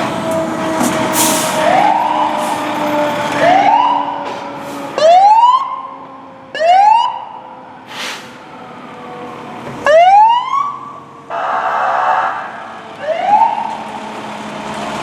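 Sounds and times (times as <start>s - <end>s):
siren whooping: 1.5s - 7.8s, 8.6s - 13.8s.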